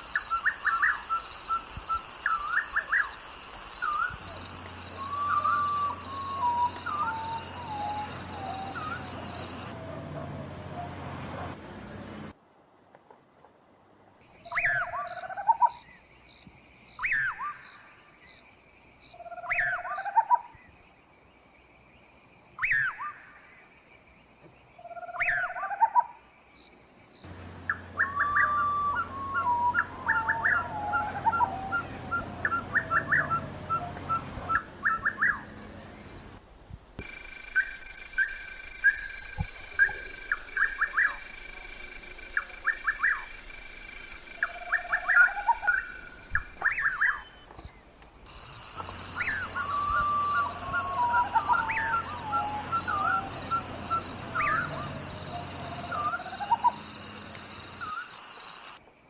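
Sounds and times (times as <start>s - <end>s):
trilled and whistled bird calls: 0.0s - 11.0s, 14.4s - 16.0s, 17.0s - 17.9s, 19.2s - 20.7s, 22.6s - 23.4s, 24.8s - 26.1s, 27.3s - 35.8s, 37.0s - 58.8s
bird whistling falling phrase: 4.9s - 9.7s, 27.6s - 35.5s, 49.1s - 56.8s
faint steady pulsing: 27.3s - 34.8s
high insect-like drone: 48.3s - 58.8s.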